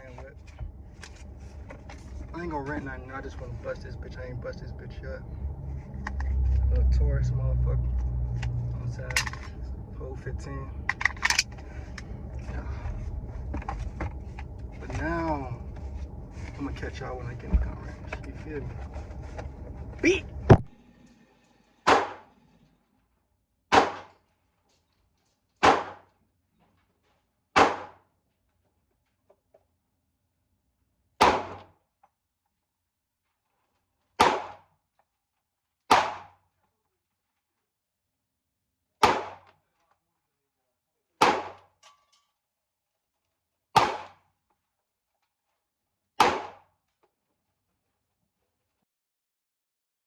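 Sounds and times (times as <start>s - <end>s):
handgun shots: 21.9s - 22.2s, 23.7s - 24.2s, 25.6s - 26.0s, 27.6s - 28.0s, 31.2s - 31.7s, 34.2s - 34.6s, 35.9s - 36.4s, 39.0s - 39.5s, 41.2s - 41.7s, 43.8s - 44.2s, 46.2s - 46.6s.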